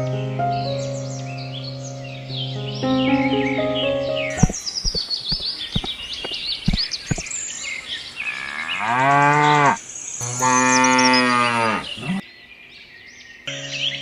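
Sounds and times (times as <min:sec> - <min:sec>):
bird chirps: 0:00.0 - 0:14.0
sharp taps: 0:04.4 - 0:07.3
cow mooing: 0:08.3 - 0:12.2.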